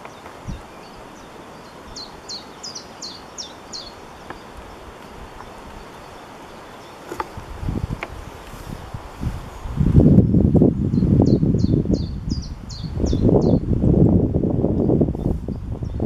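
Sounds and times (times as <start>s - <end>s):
bird singing: 0.0s - 8.4s, 9.5s - 13.6s.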